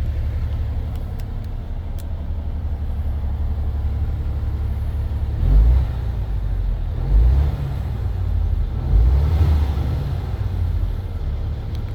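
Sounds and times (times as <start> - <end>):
diesel truck engine idling: 0.0 - 5.4
engine revving: 5.4 - 6.1, 6.9 - 10.7.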